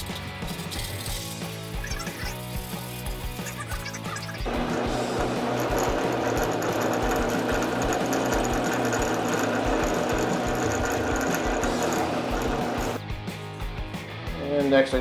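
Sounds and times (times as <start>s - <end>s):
background music: 0.0s - 15.0s
small electric power tool running: 4.4s - 13.0s.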